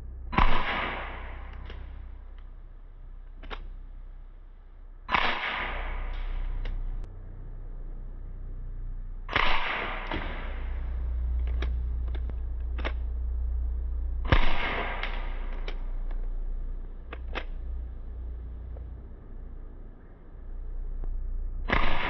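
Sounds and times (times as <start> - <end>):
bb gun shots with hissing tail: 0.3 - 2.0, 5.1 - 6.8, 9.3 - 11.6, 14.2 - 16.4, 21.6 - 22.0
light clicks: 3.2 - 3.8, 6.0 - 7.1, 10.0 - 13.6, 14.3 - 19.0.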